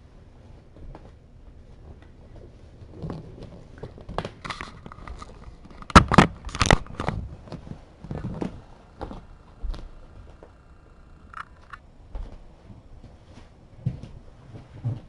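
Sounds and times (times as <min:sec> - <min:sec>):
rustling and crinkling handling: 0:00.0 - 0:10.6.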